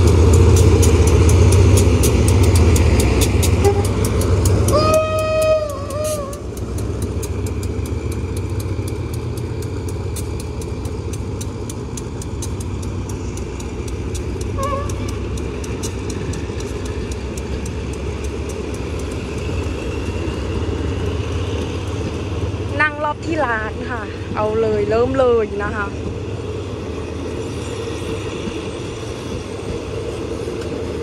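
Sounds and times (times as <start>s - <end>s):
train rumbling: 0.0s - 31.0s
train horn blast: 3.6s - 4.0s, 4.6s - 6.5s, 14.6s - 15.2s.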